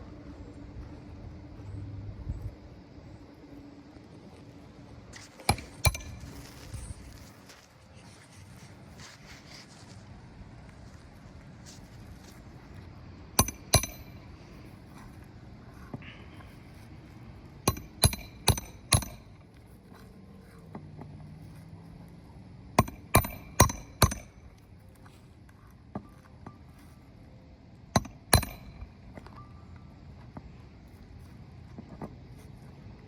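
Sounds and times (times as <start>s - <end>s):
hammer strikes on roof: 22.8s - 24.3s.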